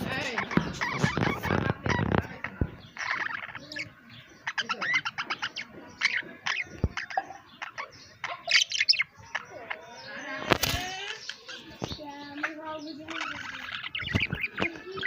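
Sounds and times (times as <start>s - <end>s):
budgerigars chirping and warbling: 0.0s - 15.0s.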